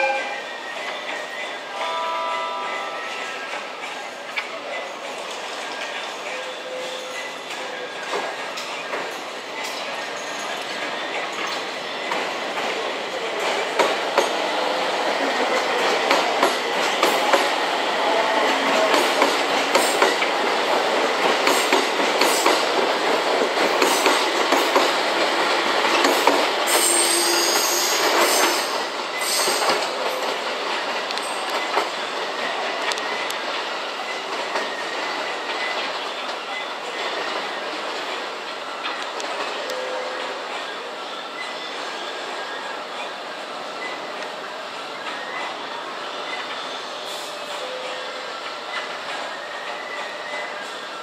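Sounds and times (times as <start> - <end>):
train wheels clattering over joints: 18.5 - 32.8
high wheel squeal: 26.7 - 30.2.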